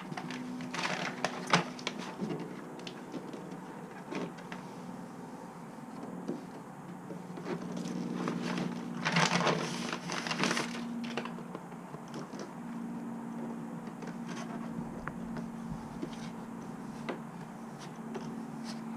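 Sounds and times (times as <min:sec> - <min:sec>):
crinkling sheets: 0:00.0 - 0:04.8, 0:07.2 - 0:12.5.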